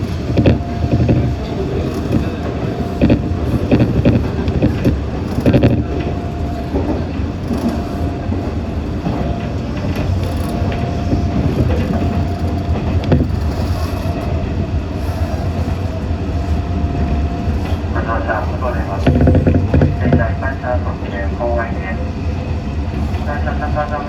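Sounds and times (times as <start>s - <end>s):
train wheels rumbling: 0.0s - 24.0s
sharp knocks from track: 18.8s - 20.4s.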